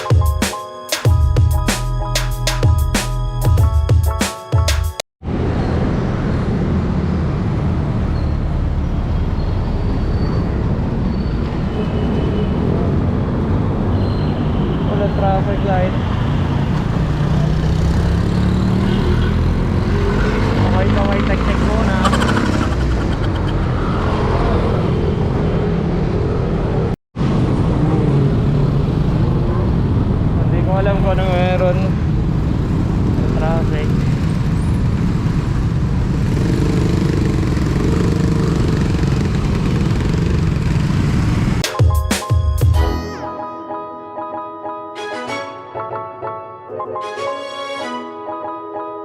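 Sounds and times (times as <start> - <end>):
road traffic: 5.2 - 41.7.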